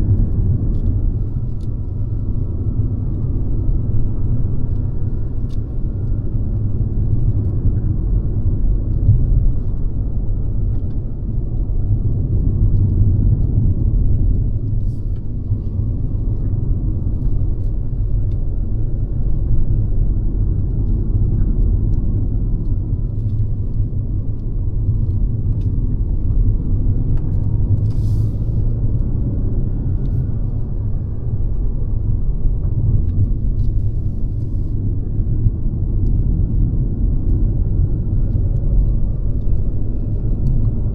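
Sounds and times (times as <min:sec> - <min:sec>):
car engine rumble: 0:00.0 - 0:40.9
road noise: 0:00.0 - 0:40.9.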